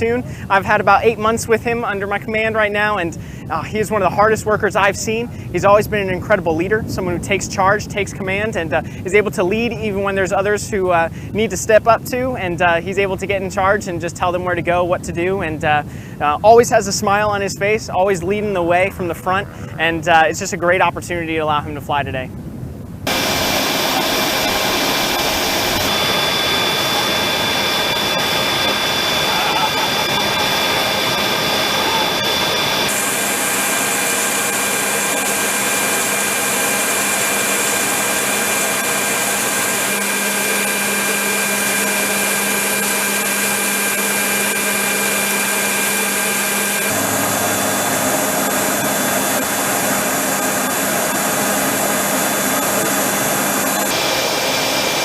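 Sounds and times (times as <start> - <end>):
helicopter turbine whine: 0.0 - 55.0
loud even engine rush: 23.0 - 55.0.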